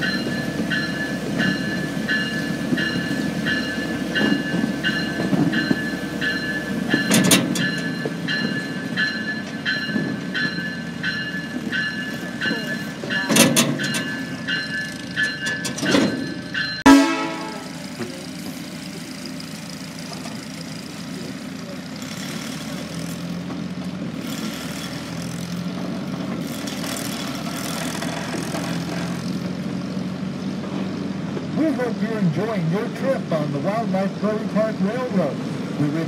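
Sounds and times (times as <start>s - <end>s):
sharp clanks: 0.0s - 18.2s
train cars rumbling: 0.0s - 36.0s
loud bang with short ring: 15.8s - 17.8s.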